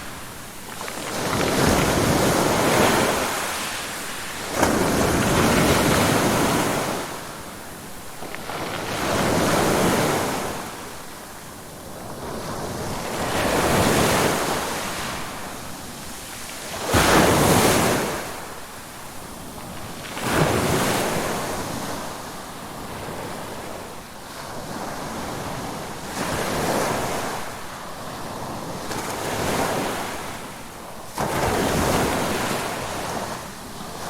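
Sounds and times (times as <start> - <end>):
ocean waves breaking: 0.0 - 11.0.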